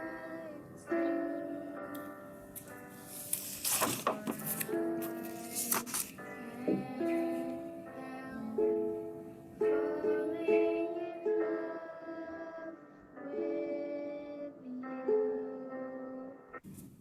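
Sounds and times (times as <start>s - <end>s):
slow ukulele tune: 0.0s - 12.6s.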